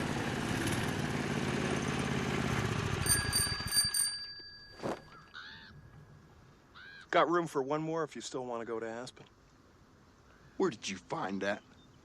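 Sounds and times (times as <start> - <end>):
small motorbike engine running: 0.0 - 4.3
bicycle bell ringing: 3.0 - 5.4.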